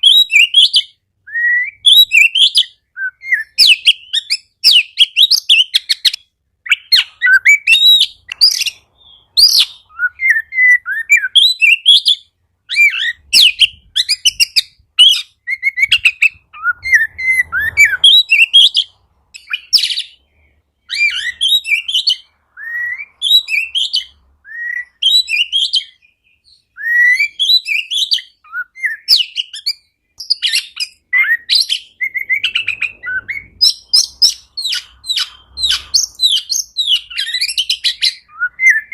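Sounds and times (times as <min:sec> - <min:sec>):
bird whistles and chirps: 0:00.0 - 0:38.9.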